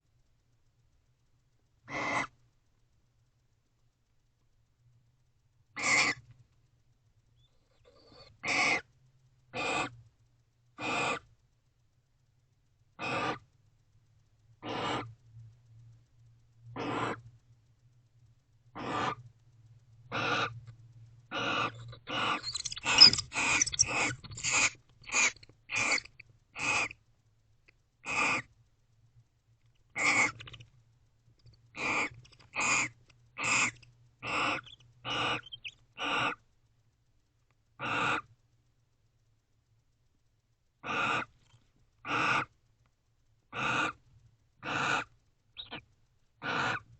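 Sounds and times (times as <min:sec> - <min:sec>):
owls rasping calls: 0:01.9 - 0:02.4, 0:05.8 - 0:06.3, 0:07.7 - 0:08.9, 0:09.5 - 0:10.0, 0:10.8 - 0:11.3, 0:13.0 - 0:13.5, 0:14.6 - 0:15.2, 0:16.8 - 0:17.3, 0:18.7 - 0:19.2, 0:20.1 - 0:20.6, 0:21.3 - 0:27.0, 0:28.0 - 0:28.5, 0:29.9 - 0:30.6, 0:31.7 - 0:36.4, 0:37.8 - 0:38.3, 0:40.8 - 0:41.4, 0:42.0 - 0:42.5, 0:43.5 - 0:44.0, 0:44.6 - 0:46.9.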